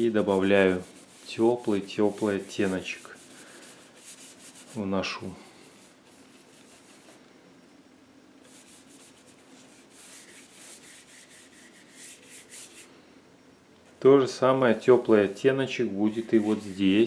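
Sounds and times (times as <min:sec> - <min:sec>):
paintbrush scratchy strokes: 0:00.0 - 0:04.9, 0:05.6 - 0:07.2, 0:08.5 - 0:12.9, 0:15.2 - 0:17.0.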